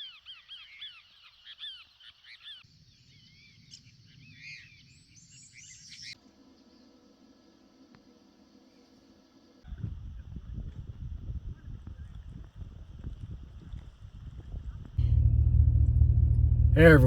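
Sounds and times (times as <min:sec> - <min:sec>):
bird warbling song: 0:00.0 - 0:06.2
small birds chirping: 0:00.0 - 0:06.2
faint low hum: 0:09.7 - 0:17.0
low rumble: 0:15.0 - 0:17.0.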